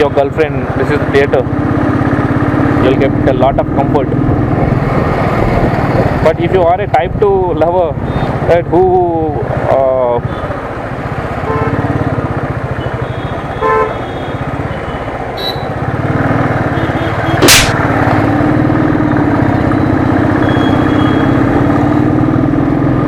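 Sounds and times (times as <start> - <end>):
horn toots: 15.4 - 15.7
motorcycle engine thumping: 17.4 - 17.8
sharp loud click: 17.4 - 17.8.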